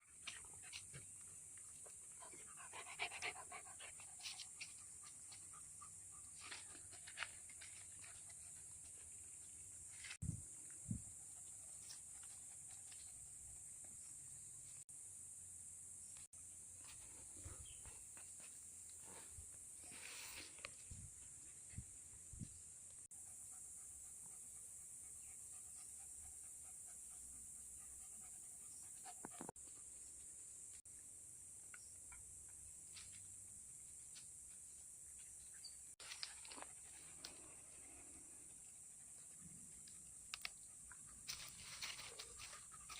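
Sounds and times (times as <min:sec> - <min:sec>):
pet panting: 0:02.1 - 0:09.2.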